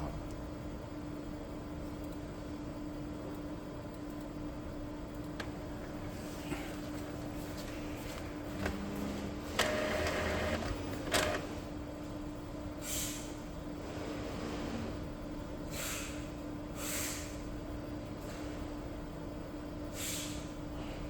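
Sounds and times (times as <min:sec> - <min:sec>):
printer low hum: 0:04.5 - 0:12.8
printer motor whirring: 0:08.1 - 0:11.8
printer clicks: 0:09.5 - 0:11.5
short hisses: 0:15.7 - 0:16.2, 0:16.8 - 0:17.4, 0:20.0 - 0:20.4.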